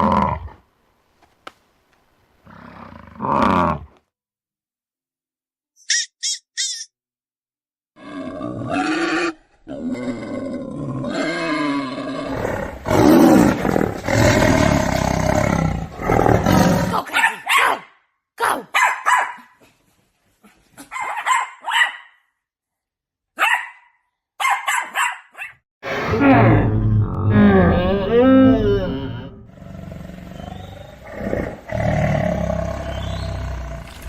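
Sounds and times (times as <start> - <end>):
animal growling calls: 2.4 - 4.0, 8.0 - 17.1, 25.8 - 34.0.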